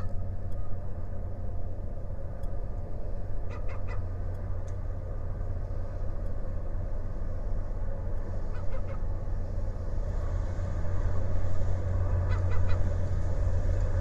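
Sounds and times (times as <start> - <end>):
steady low rumble: 0.0 - 14.0
gull calling: 3.4 - 4.1, 8.4 - 9.1, 12.1 - 13.0.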